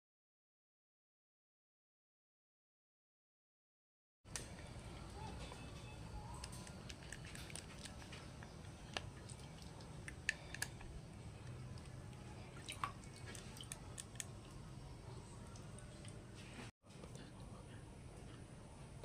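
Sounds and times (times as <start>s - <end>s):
low steady hum: 4.3s - 19.0s
small parts and tools clicking: 5.4s - 11.9s.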